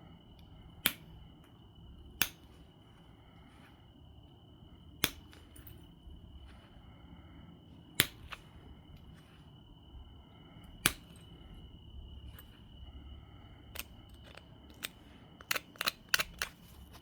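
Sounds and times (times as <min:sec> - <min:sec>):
sharp clicks of stone knapping: 0:02.2 - 0:02.6, 0:05.0 - 0:05.7, 0:08.0 - 0:08.5, 0:10.8 - 0:11.3, 0:13.8 - 0:17.0.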